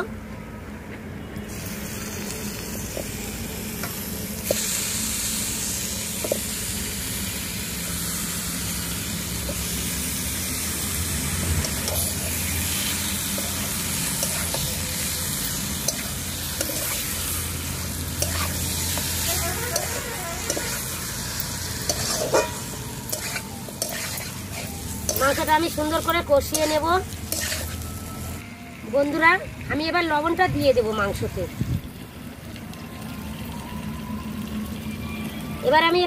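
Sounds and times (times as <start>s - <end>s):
chicken sizzling in hot oil: 1.4s - 36.0s
metal spatula scraping: 10.8s - 27.8s.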